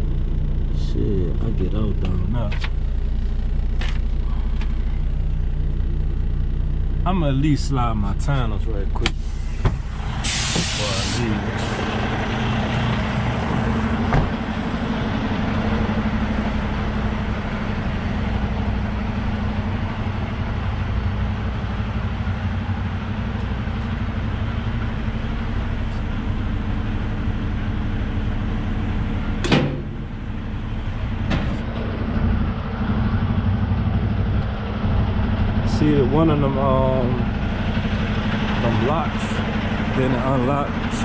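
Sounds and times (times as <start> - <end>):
diesel truck engine idling: 0.0 - 41.0
sharp knock: 29.4 - 30.0.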